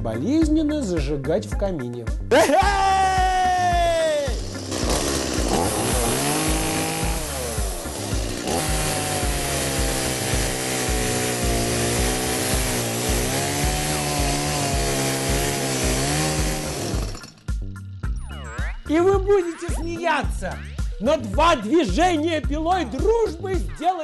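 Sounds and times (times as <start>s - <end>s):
background music beat: 0.0s - 24.0s
chainsaw cutting log: 3.4s - 17.5s.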